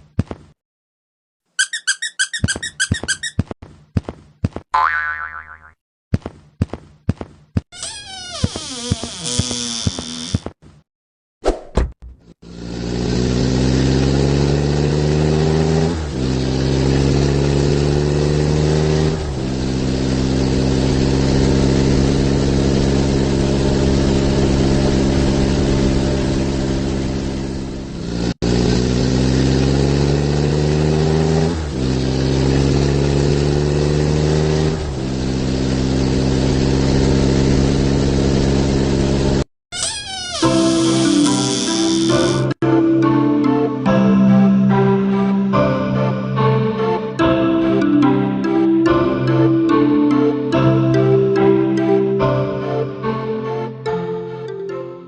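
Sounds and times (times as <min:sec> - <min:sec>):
truck engine accelerating: 0:12.2 - 0:43.7.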